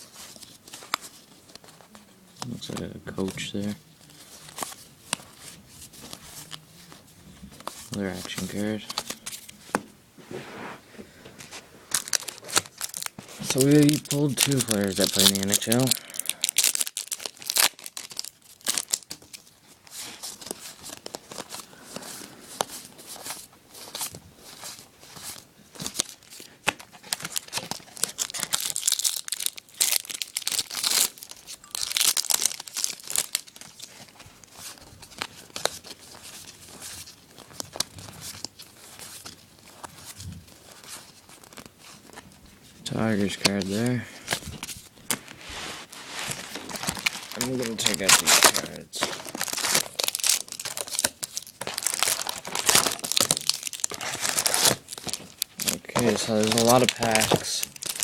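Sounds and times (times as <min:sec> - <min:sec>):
wrapper tearing and crinkling: 0:11.9 - 0:21.7, 0:23.1 - 0:42.2, 0:43.0 - 0:58.0.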